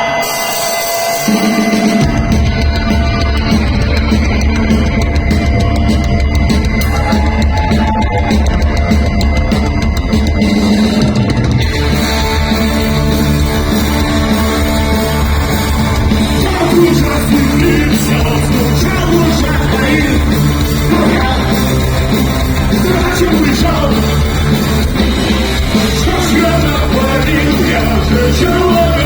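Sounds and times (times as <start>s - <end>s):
punk rock band playing: 0.0s - 29.0s
person singing: 16.3s - 24.6s, 25.6s - 29.0s.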